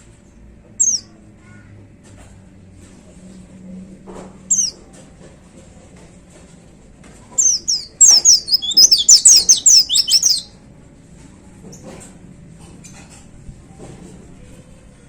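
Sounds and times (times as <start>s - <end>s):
bird singing rapid high notes: 4.5s - 4.7s, 7.4s - 10.5s.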